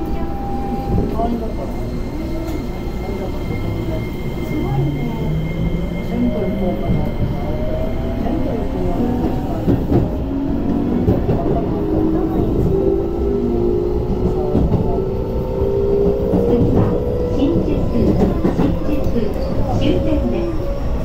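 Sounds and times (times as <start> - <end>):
wheels rumbling on rail: 0.0 - 21.0
rail joint clicks: 8.5 - 12.9, 16.0 - 20.8.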